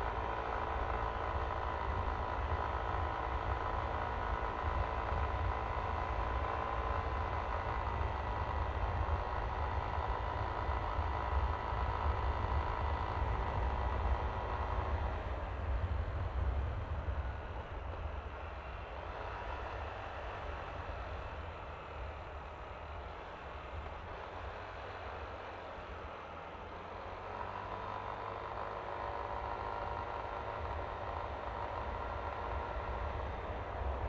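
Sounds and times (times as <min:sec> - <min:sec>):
engine whine: 0:00.0 - 0:34.0
scooter engine running: 0:19.4 - 0:34.0.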